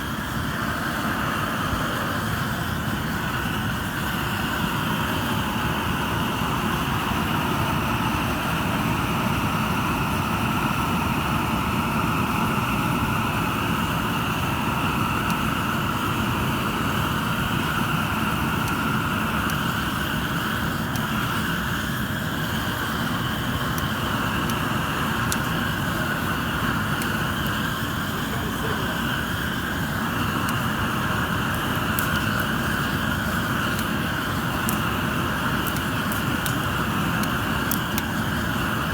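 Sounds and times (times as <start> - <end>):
propane burners roaring: 0.0 - 38.9
faint ticks: 31.4 - 38.5.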